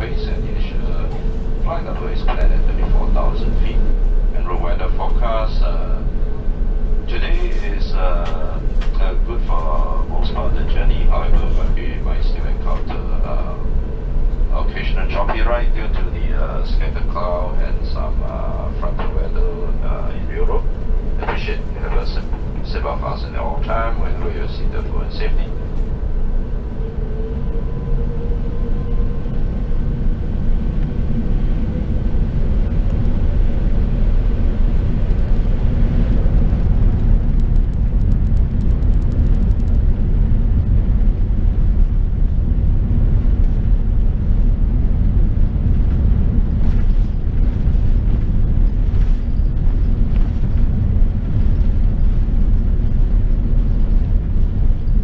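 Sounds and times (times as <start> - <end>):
faint whining tones: 0.0 - 32.4
airplane cabin engine rumble: 0.0 - 55.0.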